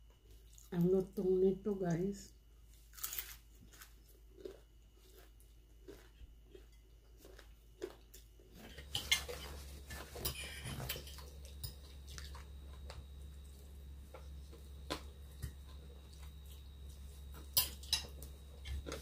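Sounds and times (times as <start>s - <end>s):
crunching crispy fried fish: 2.7s - 8.1s.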